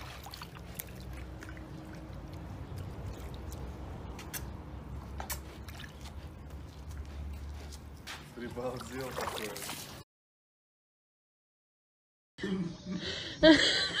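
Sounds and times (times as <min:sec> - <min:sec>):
water pouring and running: 0:00.0 - 0:04.4, 0:08.4 - 0:10.0.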